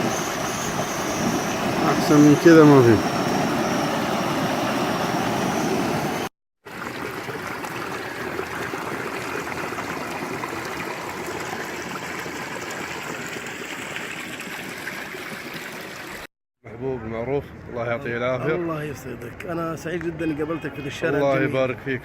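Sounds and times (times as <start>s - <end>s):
stream water rushing and trickling: 0.0s - 16.3s.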